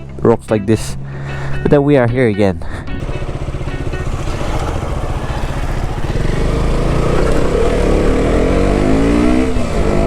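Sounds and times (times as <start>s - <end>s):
wind and road noise: 2.8s - 10.0s
motorcycle engine accelerating: 3.0s - 10.0s.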